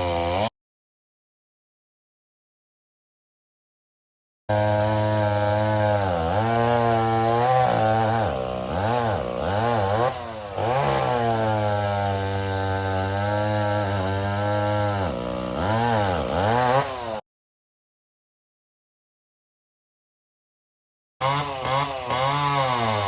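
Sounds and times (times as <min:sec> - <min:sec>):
two-stroke chainsaw engine revving: 0:00.0 - 0:00.5, 0:04.5 - 0:17.2, 0:21.2 - 0:23.0.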